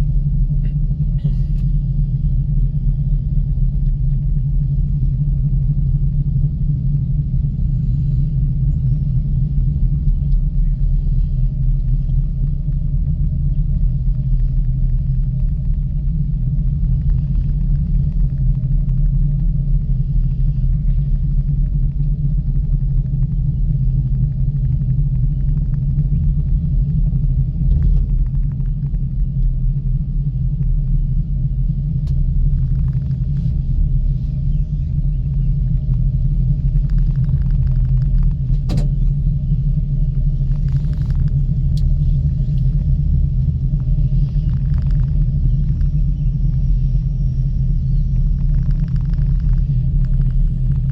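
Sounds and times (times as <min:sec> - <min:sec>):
gondola rumbling: 0:00.0 - 0:50.9
faint irregular ticks: 0:35.1 - 0:38.6, 0:40.2 - 0:46.8, 0:48.0 - 0:50.9.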